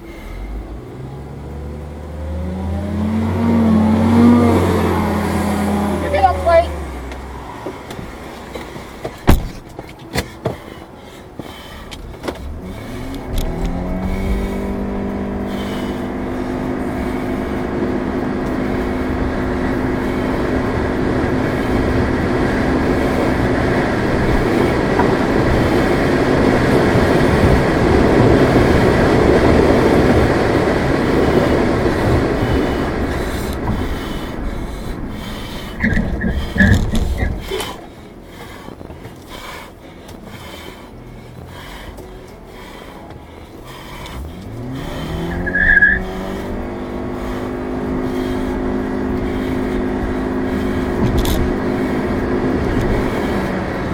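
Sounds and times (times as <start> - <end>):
car engine pulling away: 0.0 - 53.9
road and wind noise: 0.0 - 53.9
sharp knocks and clatter: 7.7 - 10.7.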